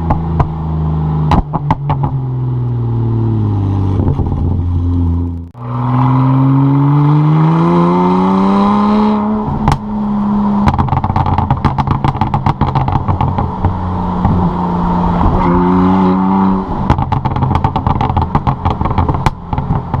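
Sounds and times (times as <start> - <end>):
exhaust pops crackling: 0.0 - 2.8, 3.9 - 5.6, 9.5 - 10.0, 10.6 - 20.0
car engine revving: 0.0 - 20.0
exhaust crack: 0.0 - 20.0.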